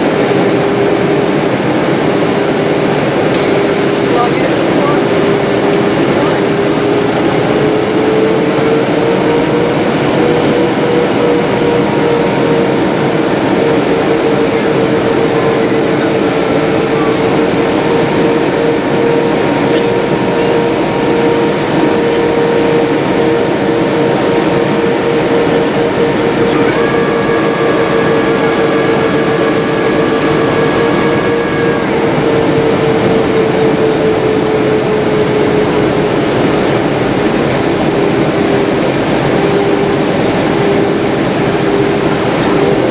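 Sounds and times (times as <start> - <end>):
airliner cabin air rush: 0.0 - 42.9
faint high whine: 0.0 - 42.9
jet engines droning: 0.0 - 42.9.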